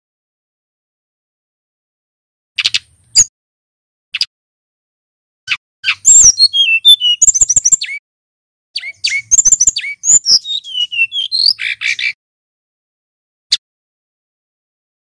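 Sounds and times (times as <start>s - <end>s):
bird singing whistled notes: 5.5s - 8.0s, 8.8s - 12.2s.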